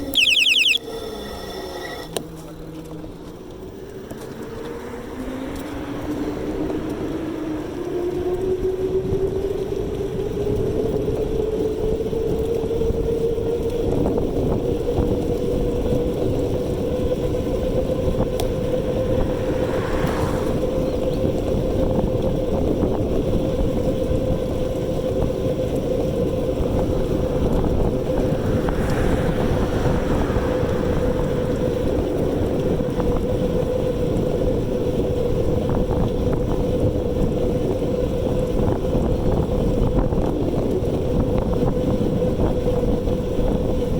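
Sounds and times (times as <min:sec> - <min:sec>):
wind and road noise: 0:01.9 - 0:43.9.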